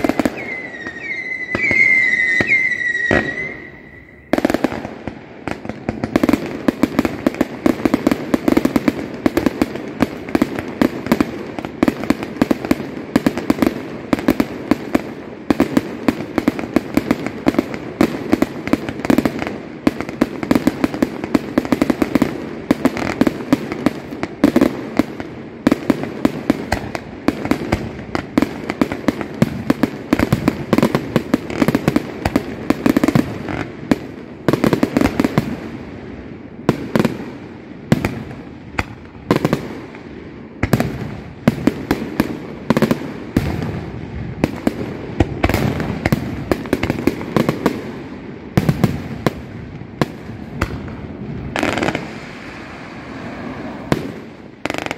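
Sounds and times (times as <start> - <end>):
firework whistle: 0.0 - 5.0, 52.2 - 54.9
fireworks cracks and bangs: 0.0 - 54.9.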